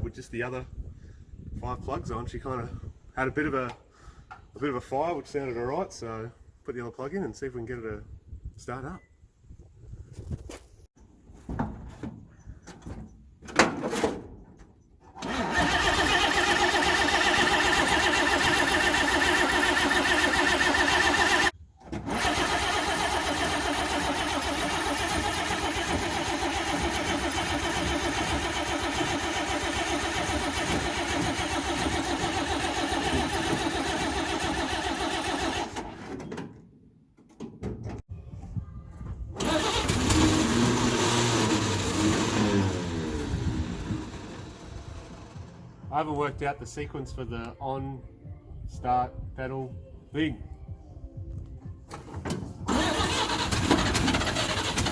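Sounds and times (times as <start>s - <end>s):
truck engine cranking on starter: 15.0s - 36.3s, 39.3s - 45.9s, 51.9s - 54.9s.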